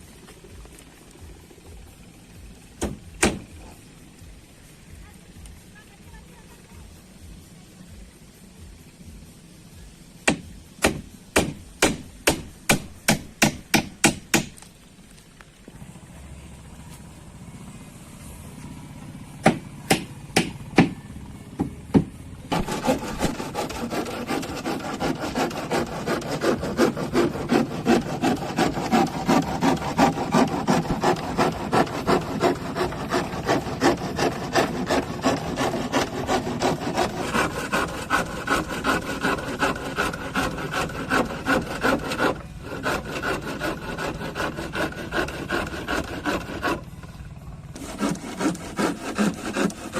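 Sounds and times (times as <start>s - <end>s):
hand saw cutting wood: 2.8s - 3.6s, 10.3s - 14.7s, 19.4s - 21.0s, 22.0s - 47.0s, 47.7s - 49.9s.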